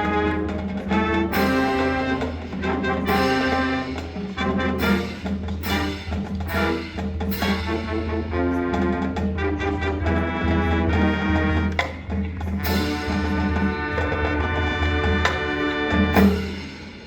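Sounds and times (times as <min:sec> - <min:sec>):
drum line: 0:00.0 - 0:17.0.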